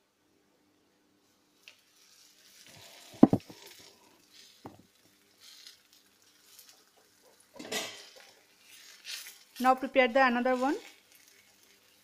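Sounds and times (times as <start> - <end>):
dough sizzling in hot oil: 1.2 - 12.0
sharp knocks: 3.2 - 3.5.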